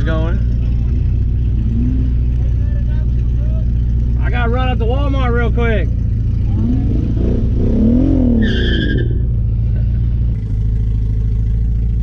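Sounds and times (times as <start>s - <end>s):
car engine running loud: 0.0s - 12.0s
high-pitched squeal: 8.1s - 9.2s.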